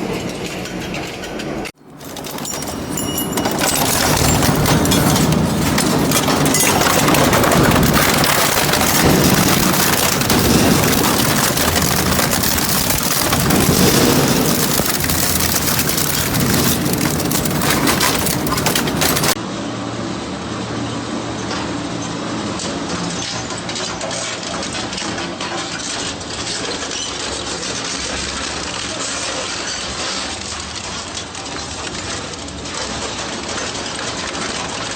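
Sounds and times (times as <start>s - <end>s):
metal shredder crunching and grinding: 0.1s - 19.4s
machine drone with low hum: 2.1s - 19.3s.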